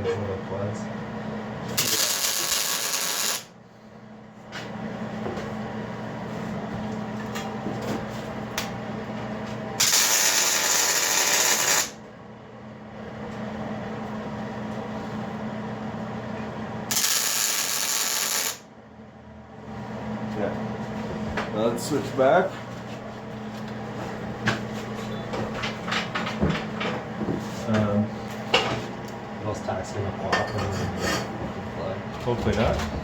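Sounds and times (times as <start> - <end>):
steady machine hum: 0.0 - 33.0
arc welding crackling hiss: 1.8 - 3.5, 9.8 - 12.0, 16.9 - 18.6.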